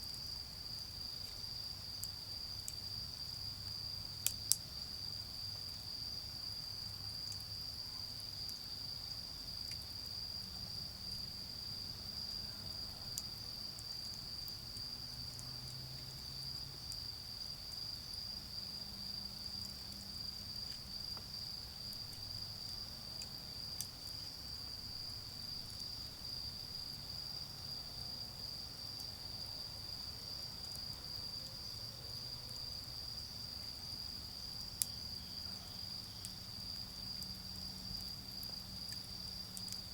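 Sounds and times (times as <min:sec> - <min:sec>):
insects trilling: 0:00.0 - 0:39.9
charcoal fire popping: 0:19.4 - 0:25.8.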